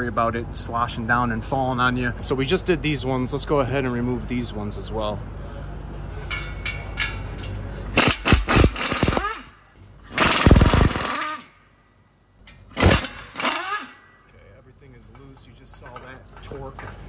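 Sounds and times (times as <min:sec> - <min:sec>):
impact wrench hammering: 0:06.3 - 0:11.6, 0:12.4 - 0:14.3.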